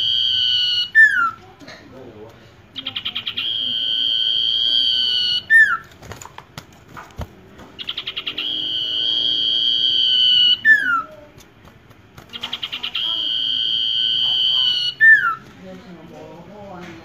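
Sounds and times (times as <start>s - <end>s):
bird whistling song: 0.0s - 1.4s, 2.8s - 5.9s, 7.8s - 11.2s, 12.3s - 15.4s.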